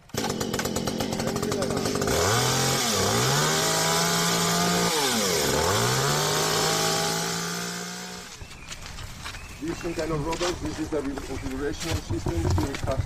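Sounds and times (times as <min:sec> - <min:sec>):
chainsaw running at high revs: 0:00.0 - 0:08.4.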